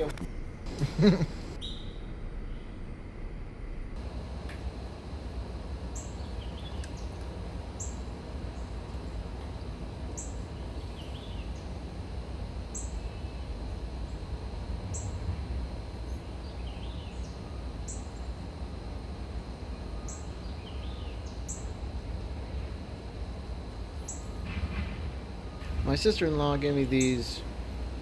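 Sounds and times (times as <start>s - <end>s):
low background rumble: 3.9s - 28.0s
small bird chirping: 4.0s - 24.5s.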